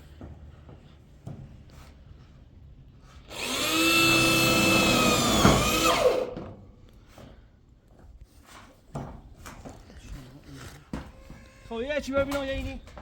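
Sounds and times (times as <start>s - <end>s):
small motor running: 3.3s - 6.3s.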